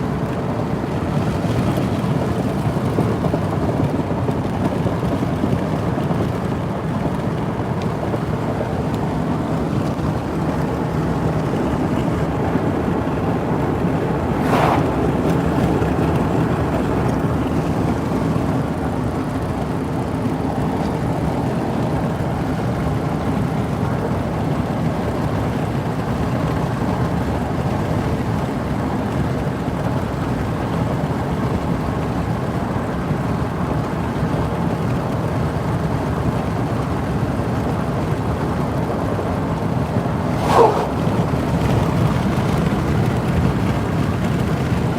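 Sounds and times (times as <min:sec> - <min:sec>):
car road and engine noise: 0:00.0 - 0:44.9
brief hiss: 0:40.4 - 0:41.2.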